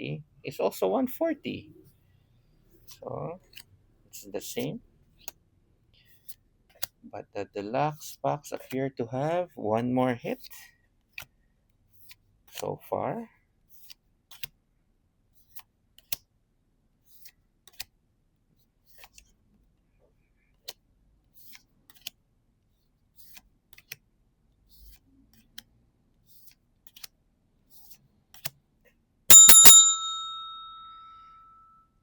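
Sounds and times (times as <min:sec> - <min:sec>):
bell ding: 0:29.3 - 0:31.7.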